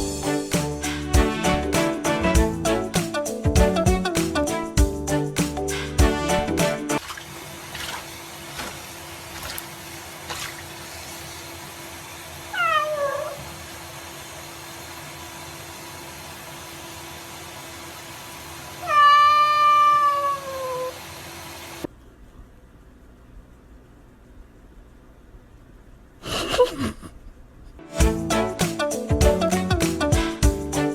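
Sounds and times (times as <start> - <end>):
cat meowing: 12.6 - 13.5, 18.8 - 21.0.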